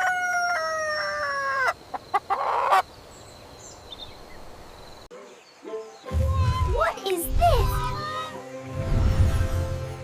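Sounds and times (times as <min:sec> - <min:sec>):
rooster crowing: 0:00.0 - 0:01.8.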